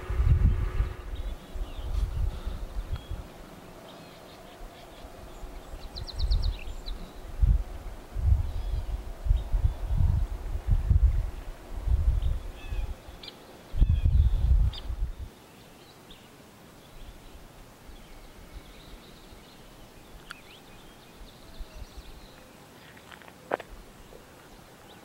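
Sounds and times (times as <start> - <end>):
wind buffeting microphone: 0.0 - 3.8, 4.4 - 15.3.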